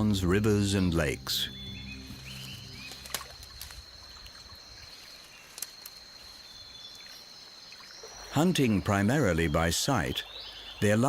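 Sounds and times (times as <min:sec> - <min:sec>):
low background music: 0:00.0 - 0:03.7
high thin insect whine: 0:00.0 - 0:10.7.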